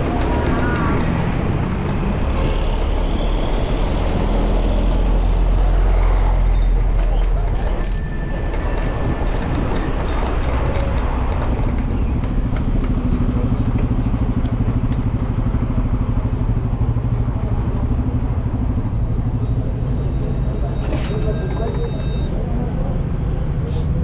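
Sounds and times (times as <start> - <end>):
road traffic rumble: 0.0 - 24.0
vehicle engine humming: 0.0 - 24.0.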